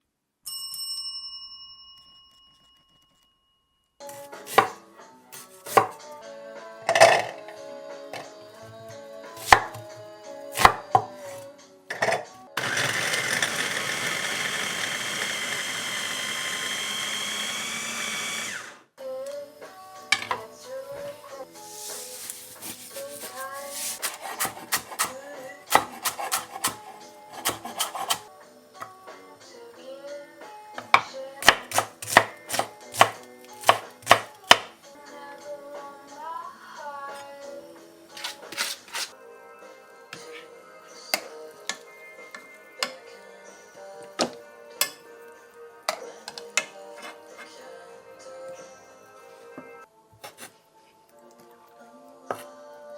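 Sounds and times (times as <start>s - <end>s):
soft background music: 2.5s - 52.9s
knife striking cutting board: 22.5s - 28.2s, 31.4s - 34.7s.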